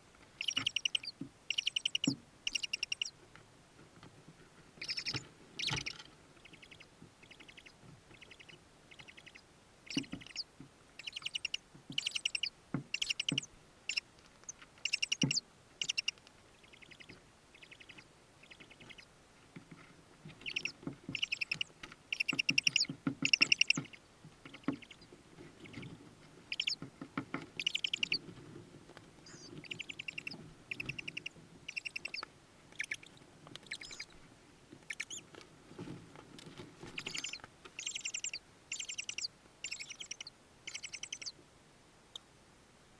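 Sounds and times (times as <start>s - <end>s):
owl chicks begging calls: 0.4s - 3.2s, 4.8s - 19.1s, 20.4s - 25.9s, 26.5s - 26.8s, 27.6s - 28.2s, 29.2s - 34.2s, 34.8s - 35.3s, 36.8s - 41.4s.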